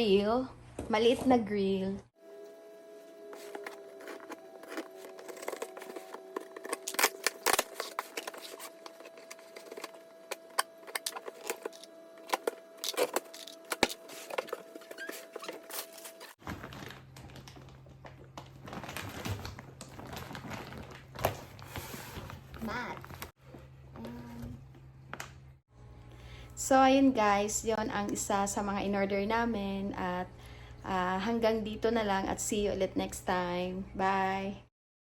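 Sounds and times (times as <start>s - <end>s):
packaging crinkling and rustling: 3.4s - 23.3s.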